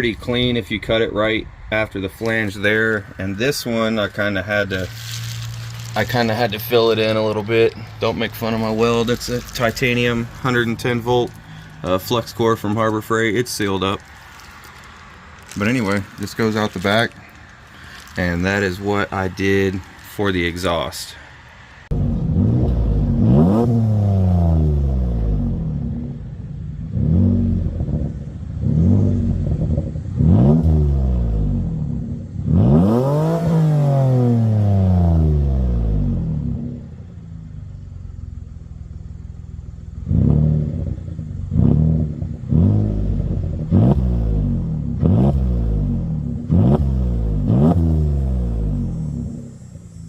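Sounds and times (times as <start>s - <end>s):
car engine revving: 0.0s - 50.0s
engine throttle blips: 21.9s - 50.0s.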